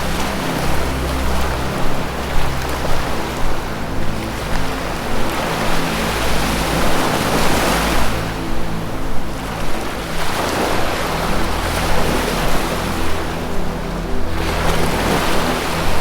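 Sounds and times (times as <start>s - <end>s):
low sustained music tones: 0.0s - 16.0s
ocean waves washing in: 0.0s - 16.0s.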